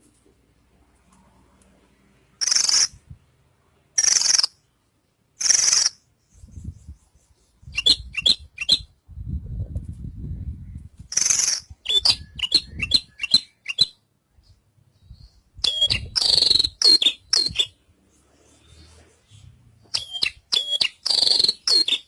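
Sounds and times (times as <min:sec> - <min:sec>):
bird chirps: 0:02.4 - 0:03.0, 0:04.0 - 0:04.7, 0:05.4 - 0:09.0, 0:10.7 - 0:17.8, 0:18.5 - 0:22.0
bird singing harsh buzzy notes: 0:14.9 - 0:17.8, 0:18.7 - 0:22.0.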